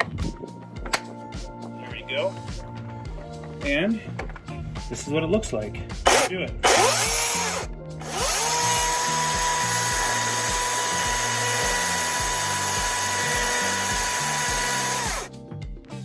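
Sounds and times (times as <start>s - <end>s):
electric chainsaw whining: 6.1s - 15.3s.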